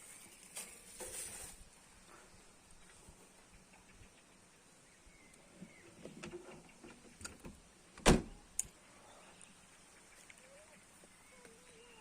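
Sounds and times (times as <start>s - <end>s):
handling clatter and rustling: 0.0s - 1.7s.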